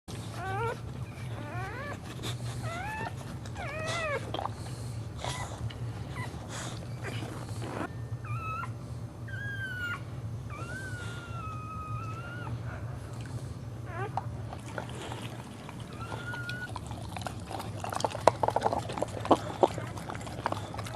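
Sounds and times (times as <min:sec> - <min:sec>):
dog whining: 0:00.1 - 0:13.2, 0:13.8 - 0:20.9
steady low hum: 0:00.1 - 0:20.9.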